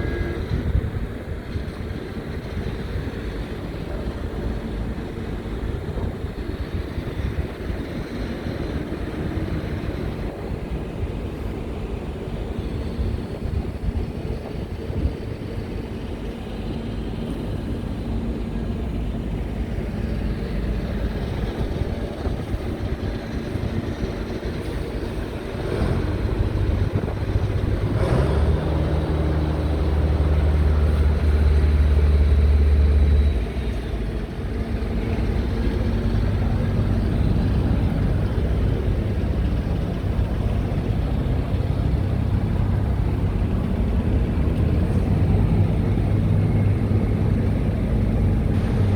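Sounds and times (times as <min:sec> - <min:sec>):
diesel truck engine running: 0:00.0 - 0:48.9.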